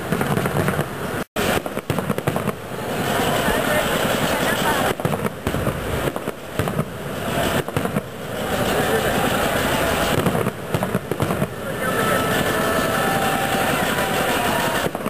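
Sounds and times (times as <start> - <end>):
firecracker bangs and crackling: 0.0 - 15.0.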